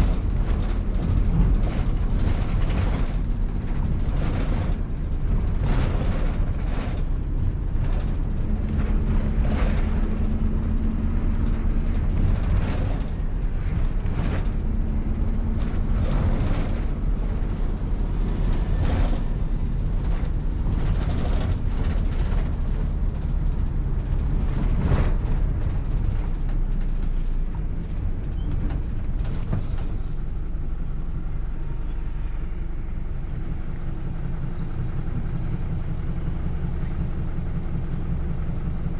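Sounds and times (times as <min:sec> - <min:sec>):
bus engine and road rumble: 0:00.0 - 0:38.9
body knocks and rattles: 0:18.9 - 0:30.2.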